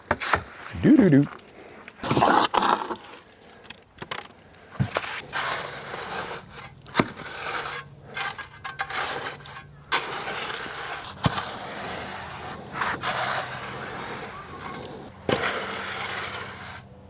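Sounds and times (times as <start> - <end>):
wet concrete scraping: 0.0 - 17.0.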